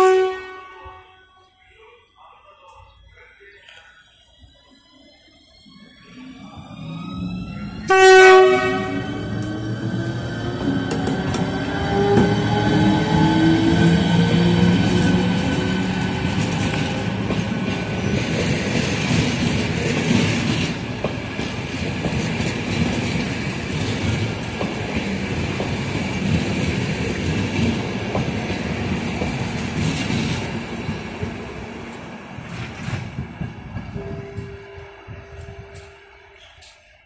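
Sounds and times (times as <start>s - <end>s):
train rumble: 1.6s - 37.0s
train wheels clattering: 9.2s - 31.5s.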